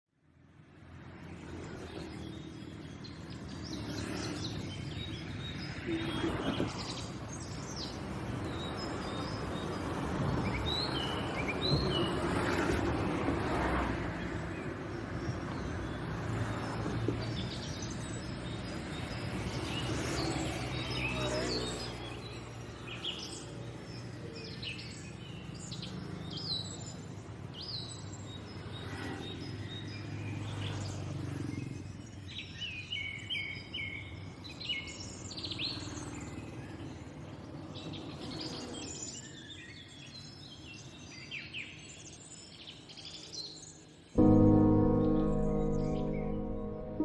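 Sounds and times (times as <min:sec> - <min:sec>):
small birds chirping: 0:01.1 - 0:12.6, 0:14.1 - 0:44.2
music: 0:44.2 - 0:47.0.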